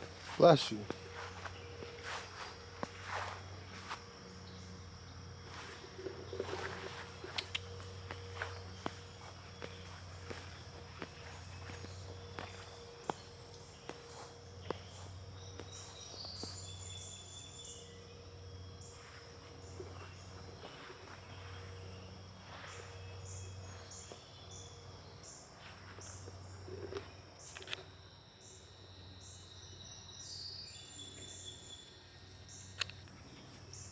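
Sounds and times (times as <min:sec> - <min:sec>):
insects chirring: 0:00.0 - 0:33.9
sharp clicks: 0:07.3 - 0:07.8, 0:32.7 - 0:33.2.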